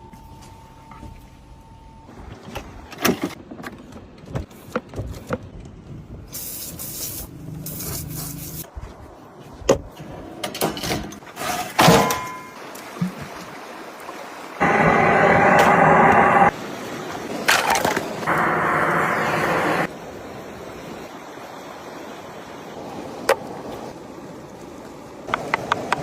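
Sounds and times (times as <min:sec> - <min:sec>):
high hiss: 0:18.3 - 0:19.9.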